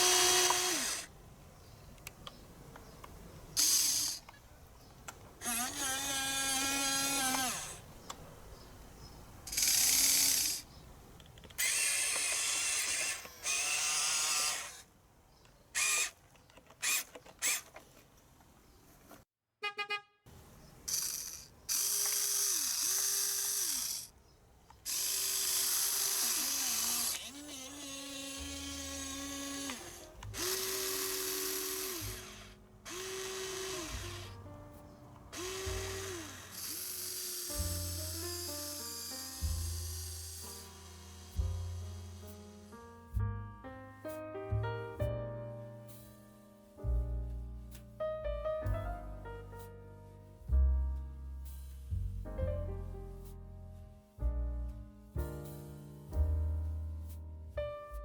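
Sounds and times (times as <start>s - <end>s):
small electric motors whirring: 0.0s - 1.1s, 3.6s - 4.4s, 5.4s - 7.9s, 9.5s - 10.7s, 11.6s - 14.9s, 15.8s - 17.8s, 20.9s - 24.2s, 24.8s - 34.4s, 35.3s - 42.4s.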